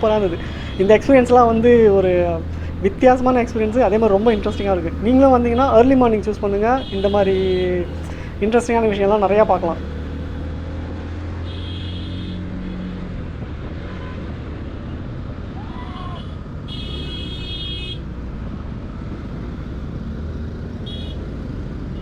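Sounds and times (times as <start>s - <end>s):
vehicle horns tooting: 0.0s - 10.4s, 11.4s - 13.0s, 16.2s - 18.1s, 20.8s - 21.3s
road and wind rush: 0.0s - 22.0s.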